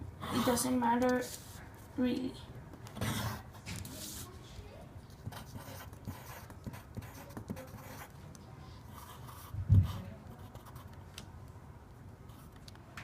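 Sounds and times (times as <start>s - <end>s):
pen scratching on paper: 2.9s - 4.3s, 5.1s - 8.2s, 8.8s - 11.0s.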